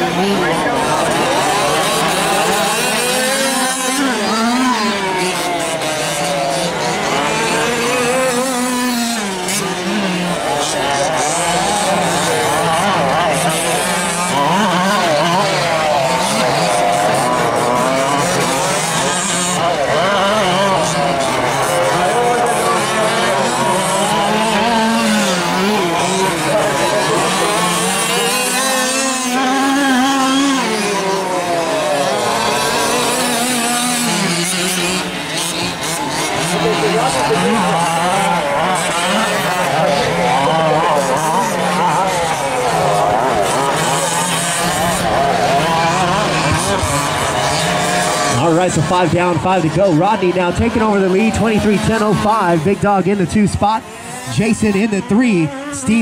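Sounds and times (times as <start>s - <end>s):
small two-stroke engines revving: 0.0s - 56.0s.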